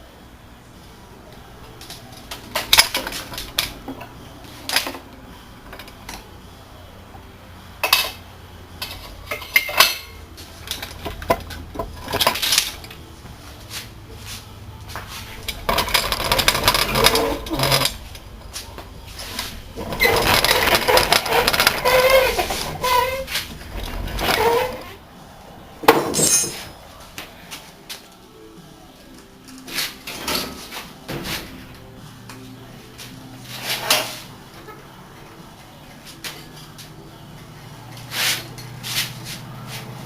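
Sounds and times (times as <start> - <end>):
metal tools clinking on engine: 26.0 - 26.7.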